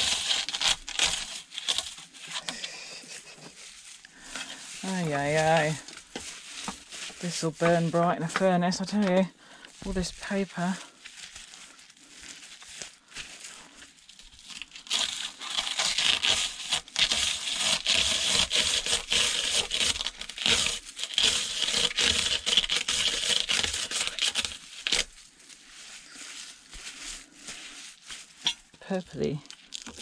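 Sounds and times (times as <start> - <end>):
faint paper rustles: 0.0 - 30.0
paper crumpling and tearing: 0.0 - 30.0
dense crackling: 1.7 - 10.8.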